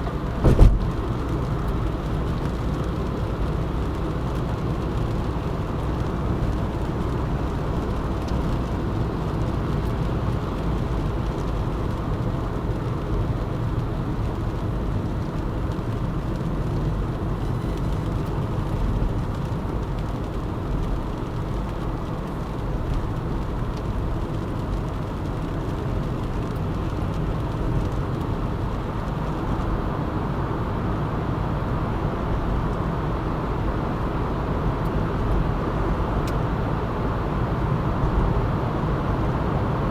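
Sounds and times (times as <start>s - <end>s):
car engine hum: 0.0s - 39.9s
tyre rumble: 0.4s - 1.1s.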